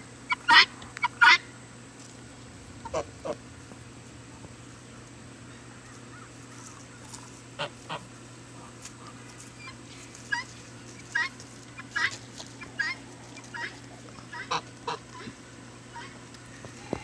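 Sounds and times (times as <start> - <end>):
low steady hum: 0.0 - 17.0
domestic fowl calling: 0.2 - 1.5, 4.8 - 17.0.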